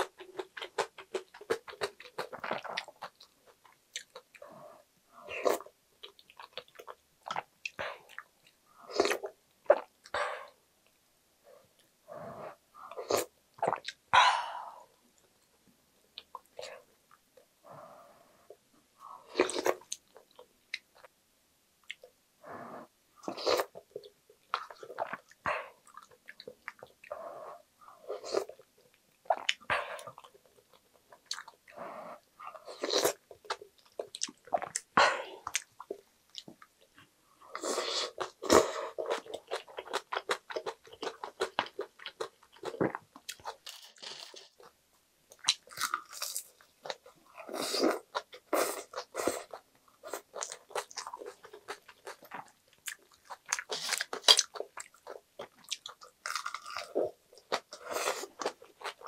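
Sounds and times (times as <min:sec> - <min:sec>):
chewing and crunching: 0:38.1 - 0:44.7, 0:45.3 - 0:59.0.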